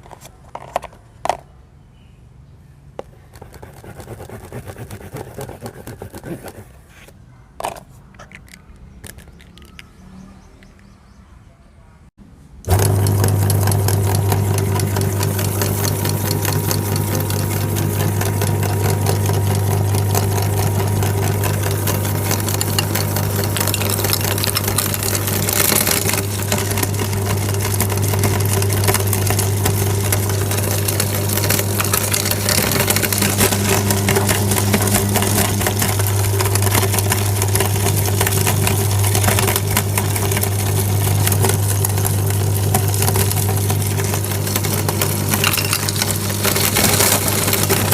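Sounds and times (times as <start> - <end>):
electric meat grinder running: 12.7 - 47.9.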